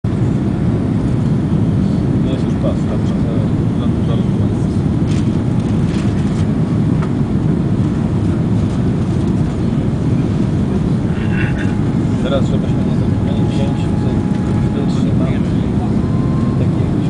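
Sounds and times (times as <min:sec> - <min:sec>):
airplane cabin engine rush: 0:00.0 - 0:17.0.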